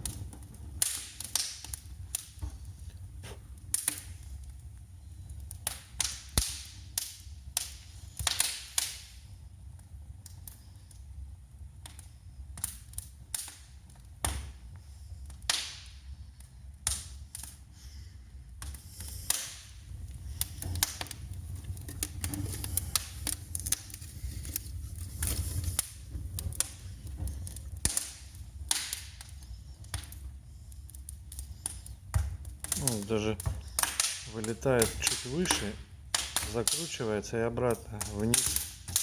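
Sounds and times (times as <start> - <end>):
wood fire crackling and popping: 0.0 - 39.0
low steady rumble: 9.1 - 39.0.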